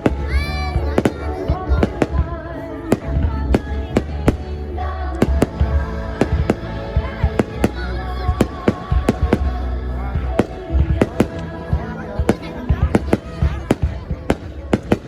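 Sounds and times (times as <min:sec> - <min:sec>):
music playing: 0:00.0 - 0:15.0
low rumble: 0:03.1 - 0:14.4.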